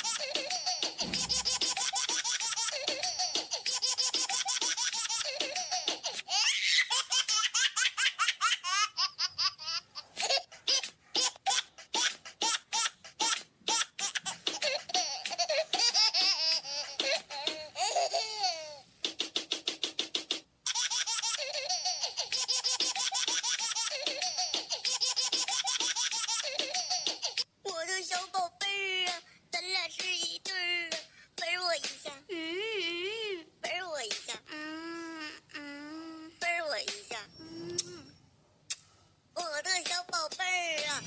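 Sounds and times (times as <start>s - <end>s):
high-pitched rhythmic laughter: 0.0s - 18.8s, 20.7s - 27.5s.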